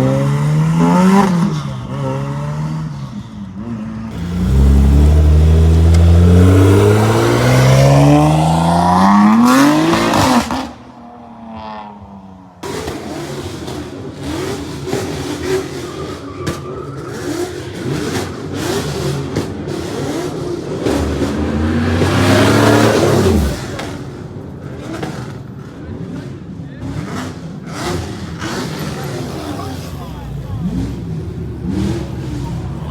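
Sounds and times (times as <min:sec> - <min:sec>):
car engine accelerating hard: 0:00.0 - 0:10.8, 0:12.6 - 0:32.9
low engine noise: 0:04.1 - 0:08.7.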